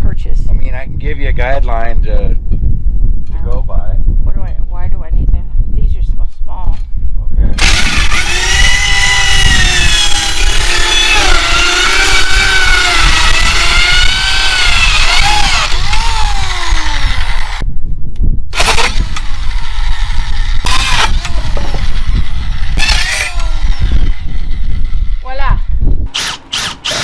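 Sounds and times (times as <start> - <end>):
power saw cutting wood: 7.6 - 17.6, 18.6 - 25.4, 26.1 - 27.0.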